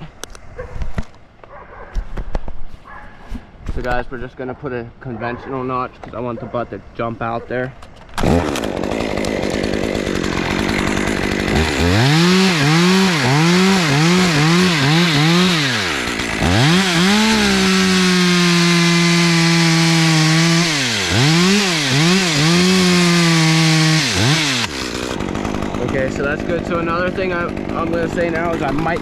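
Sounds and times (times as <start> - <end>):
chainsaw cutting wood: 8.1 - 29.0
chainsaw revving in blips: 8.2 - 29.0.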